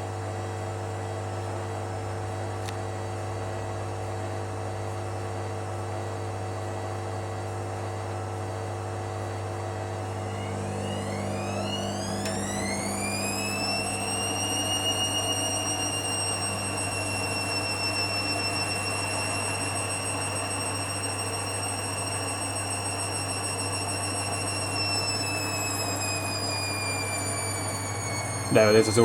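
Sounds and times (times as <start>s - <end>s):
washing machine drum spinning: 9.9s - 29.0s.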